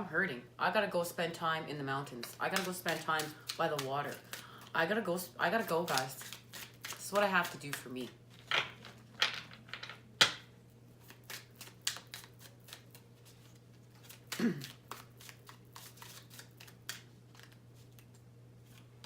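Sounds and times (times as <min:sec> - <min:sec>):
cards being shuffled: 0:02.2 - 0:04.7, 0:05.6 - 0:10.0, 0:11.0 - 0:18.9.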